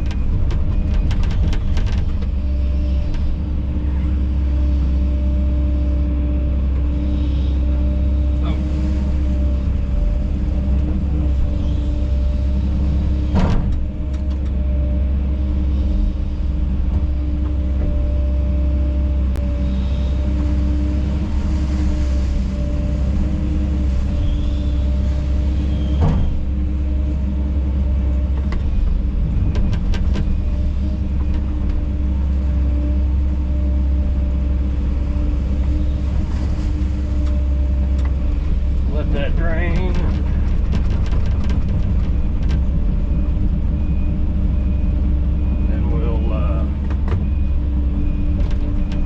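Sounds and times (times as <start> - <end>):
excavator diesel engine running: 0.0 - 49.0.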